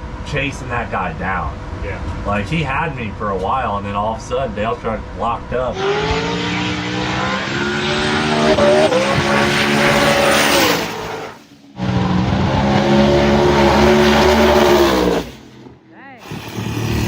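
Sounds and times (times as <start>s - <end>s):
drag racing engine at full throttle: 4.0s - 17.0s.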